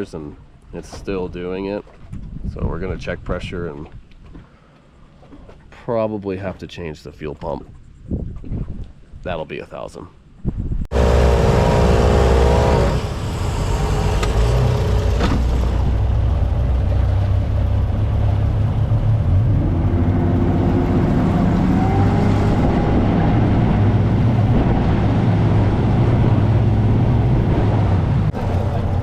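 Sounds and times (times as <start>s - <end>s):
outboard motor droning: 10.9s - 29.0s.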